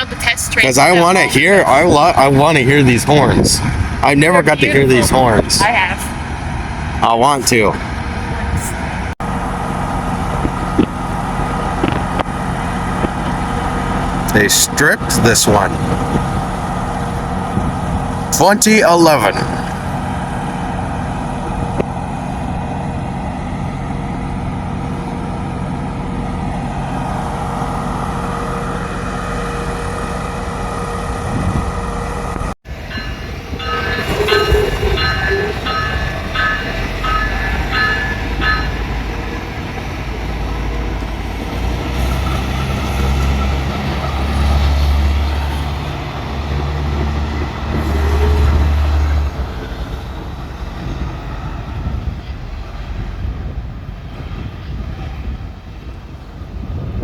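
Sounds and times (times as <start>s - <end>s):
diesel train engine drone: 0.0s - 57.0s
bell dinging: 32.9s - 39.2s.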